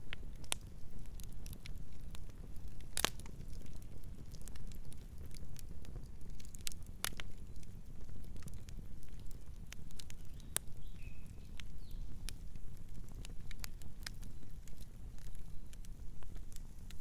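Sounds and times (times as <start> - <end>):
wood fire crackling: 0.0 - 17.0
faint bird chirp: 10.2 - 12.1.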